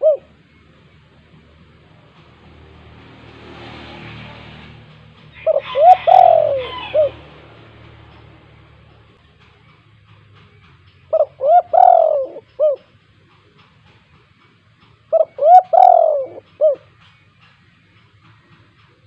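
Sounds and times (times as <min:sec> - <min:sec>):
dove cooing: 0:00.0 - 0:00.4, 0:05.4 - 0:07.4, 0:11.1 - 0:12.9, 0:15.1 - 0:16.9.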